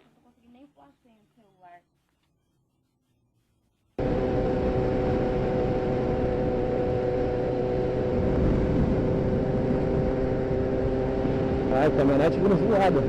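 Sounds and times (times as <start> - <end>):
wind noise on microphone: 4.0 - 12.9
motorcycle engine running: 4.0 - 13.0.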